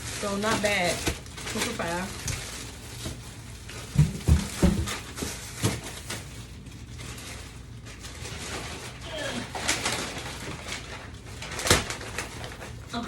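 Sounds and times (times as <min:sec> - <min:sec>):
dull thumps of groceries set down: 0:03.8 - 0:05.8.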